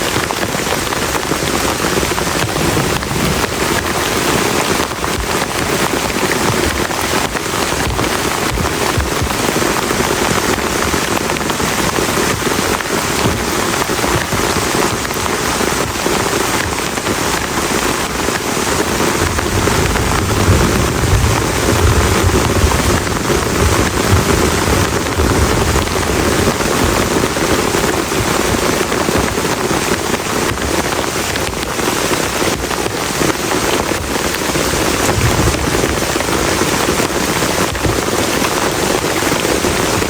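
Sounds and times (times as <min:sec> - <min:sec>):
heavy rain on shelter: 0:00.0 - 0:40.0
low rumble of thunder: 0:19.0 - 0:27.5, 0:35.0 - 0:37.3.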